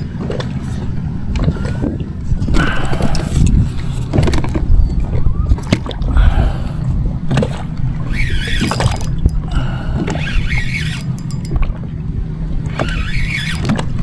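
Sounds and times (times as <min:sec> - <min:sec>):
steady low rumble: 0:00.0 - 0:12.8
wavering squeak: 0:08.1 - 0:09.5, 0:10.1 - 0:11.6, 0:12.7 - 0:14.0.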